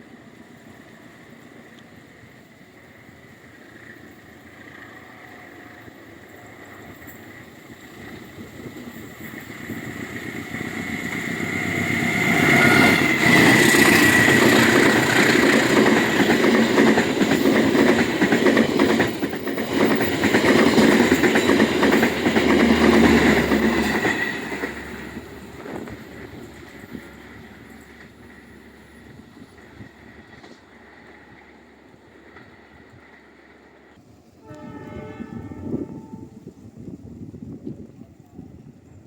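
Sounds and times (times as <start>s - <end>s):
train passing at speed: 0.0s - 39.0s.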